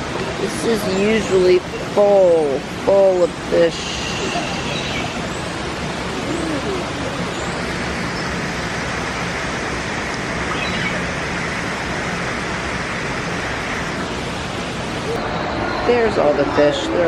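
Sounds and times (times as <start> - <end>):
faint voices: 0.0 - 5.3, 6.0 - 7.8
running water: 0.0 - 17.0.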